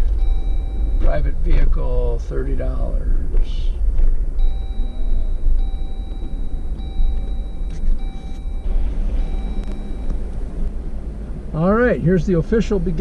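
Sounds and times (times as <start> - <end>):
engine and road rumble: 0.0 - 13.0
faint thin steady tone: 4.4 - 13.0.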